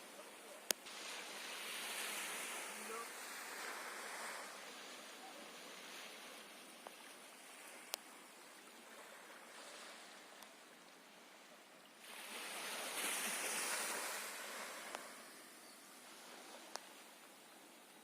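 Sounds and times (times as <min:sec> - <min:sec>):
sea water lapping: 0:00.0 - 0:18.0
surge of water: 0:00.0 - 0:18.0
faint clicks: 0:16.7 - 0:16.9.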